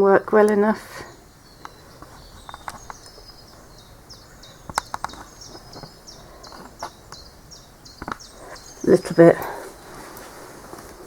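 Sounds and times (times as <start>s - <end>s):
small bird high calls: 0.0s - 10.2s
sharp clicks: 0.2s - 0.8s, 1.6s - 3.3s, 4.6s - 7.3s, 8.0s - 8.6s.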